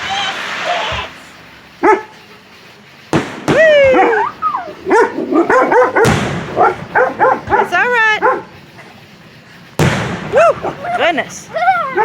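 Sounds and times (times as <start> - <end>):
firework bangs: 0.0 - 12.0
dog yelping and barking: 1.8 - 2.1, 3.8 - 8.5, 11.6 - 12.0.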